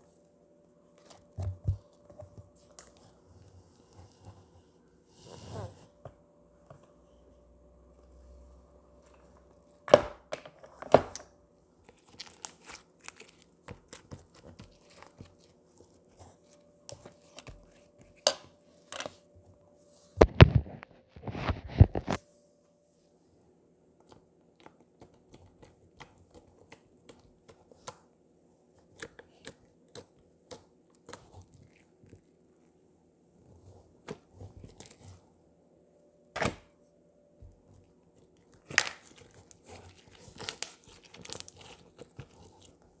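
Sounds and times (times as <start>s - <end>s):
slime clicking and crackling: 11.8s - 16.3s, 38.4s - 42.8s.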